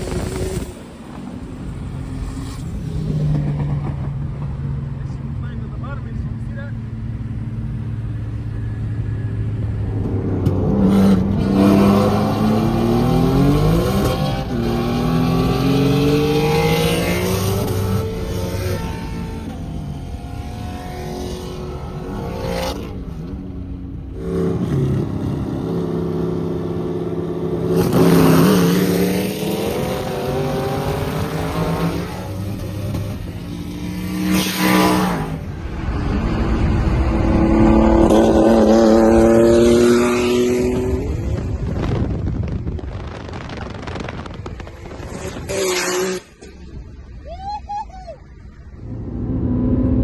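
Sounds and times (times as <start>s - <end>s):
car engine accelerating through gears: 24.1s - 42.2s.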